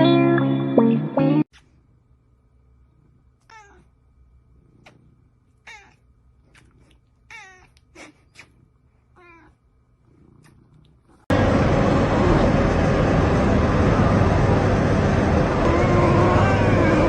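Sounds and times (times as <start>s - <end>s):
cat meowing: 3.4s - 3.9s, 5.6s - 6.0s, 7.3s - 7.8s, 9.2s - 9.6s.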